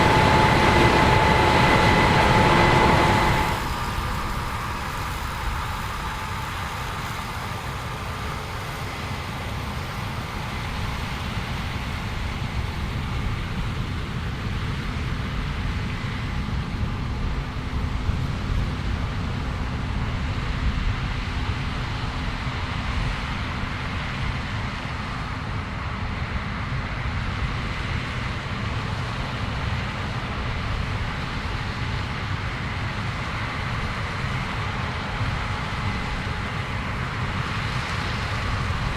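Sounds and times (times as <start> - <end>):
farm machinery rumbling: 0.0 - 7.2
faint steady whine: 0.0 - 9.0.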